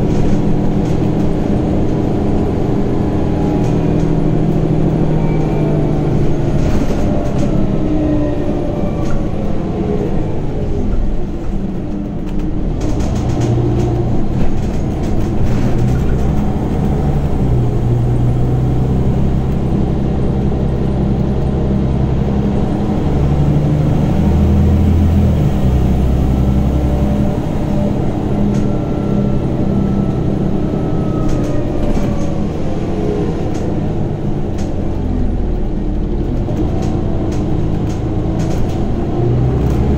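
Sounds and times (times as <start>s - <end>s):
bus diesel engine under load: 0.0s - 39.9s
body rattles and clicks: 11.9s - 17.4s, 36.2s - 39.9s.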